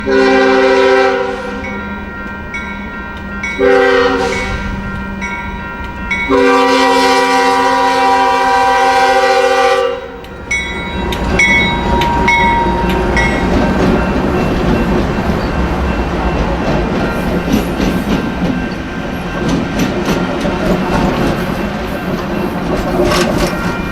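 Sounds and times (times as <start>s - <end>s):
locomotive air horn: 0.0s - 1.8s, 3.6s - 4.8s, 6.3s - 14.7s
train wheels rumbling on rail: 0.0s - 23.9s
wheel squeals: 10.3s - 23.9s.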